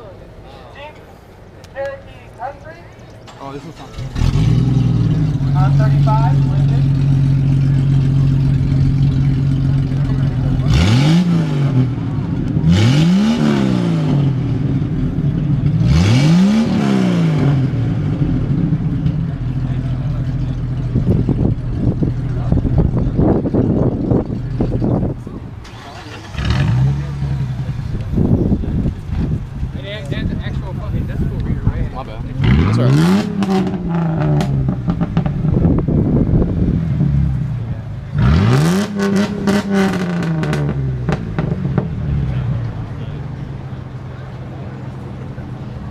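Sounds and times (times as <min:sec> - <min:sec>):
sharp exhaust crackles: 0:03.2 - 0:43.8
car engine revving and idling: 0:03.3 - 0:45.9.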